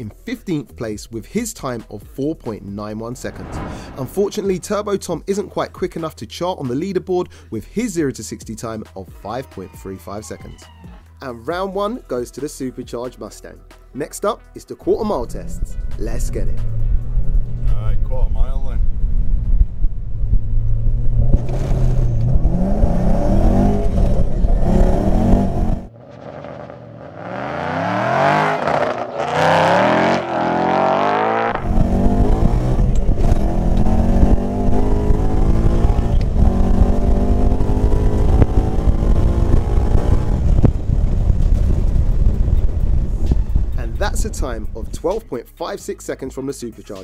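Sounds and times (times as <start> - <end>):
car engine revving hard: 20.7 - 42.5.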